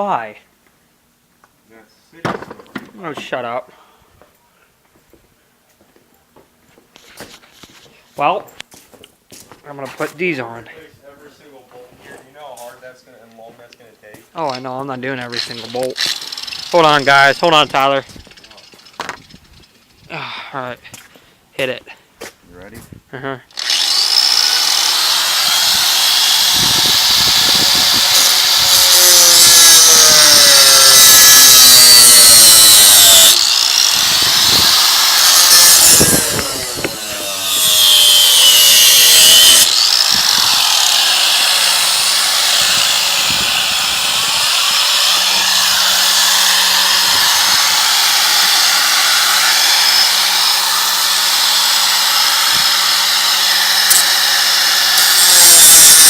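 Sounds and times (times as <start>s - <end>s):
angle grinder cutting metal: 15.2s - 19.4s, 23.6s - 56.0s.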